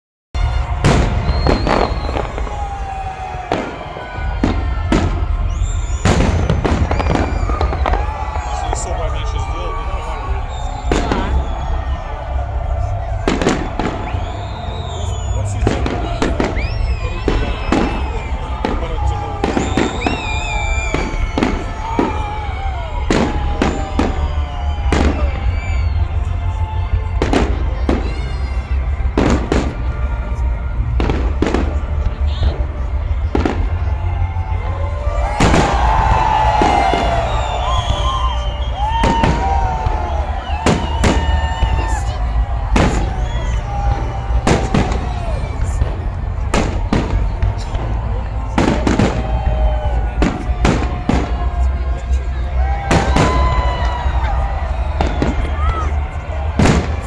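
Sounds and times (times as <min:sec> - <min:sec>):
firework whistling gliding down: 0:00.5 - 0:08.8, 0:19.4 - 0:27.4, 0:35.2 - 0:45.8.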